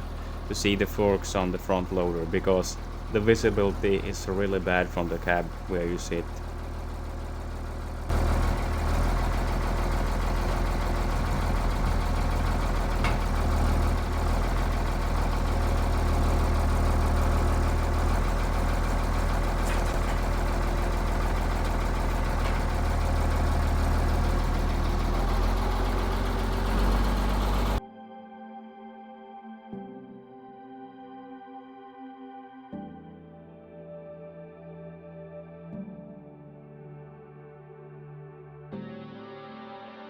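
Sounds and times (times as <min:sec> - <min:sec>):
tractor diesel engine running: 0:00.0 - 0:27.8.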